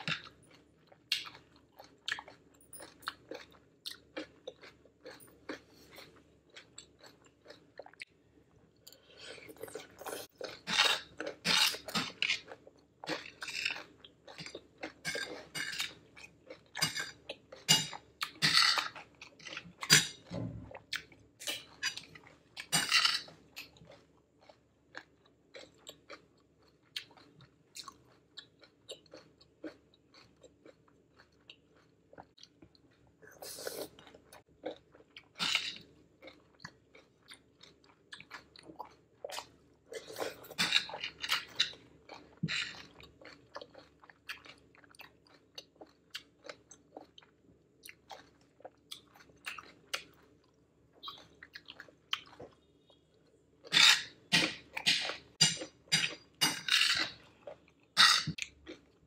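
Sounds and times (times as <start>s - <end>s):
crunchy chewing: 20.9s - 59.0s.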